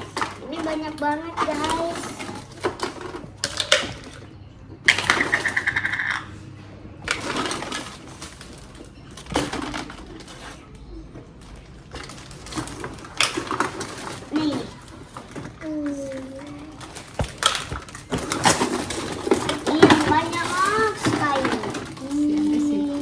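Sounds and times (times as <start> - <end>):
plastic toy pieces rattling: 4.9 - 6.3, 12.0 - 23.0.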